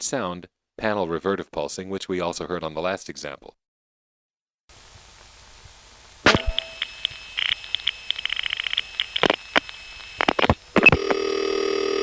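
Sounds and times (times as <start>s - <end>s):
line hiss: 4.7s - 10.5s
faint steady high tone: 6.3s - 11.0s
telephone line clicks: 6.3s - 12.0s.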